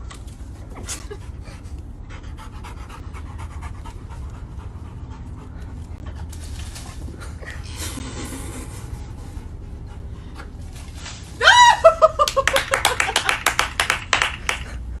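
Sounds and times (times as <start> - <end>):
person laughing: 11.4 - 13.4
rapid sharp claps: 12.2 - 14.8.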